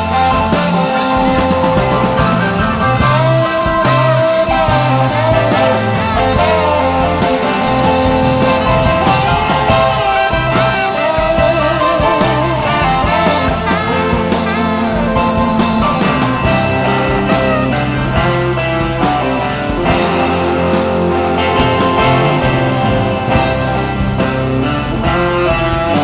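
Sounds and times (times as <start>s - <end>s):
bass and drums: 0.0s - 26.0s
electric guitar lines: 0.0s - 26.0s.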